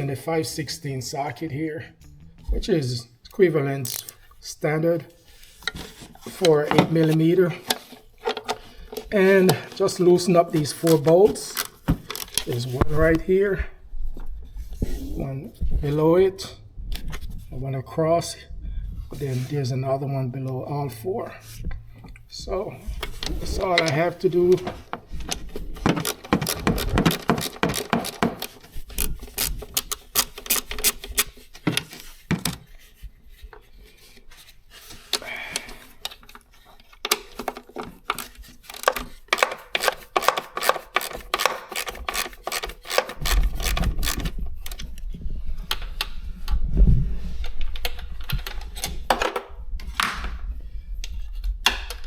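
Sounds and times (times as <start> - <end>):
socket ratchet clicking: 3.8 - 4.3, 10.7 - 12.5, 25.9 - 31.4, 38.1 - 44.8
low rumble: 16.5 - 17.8.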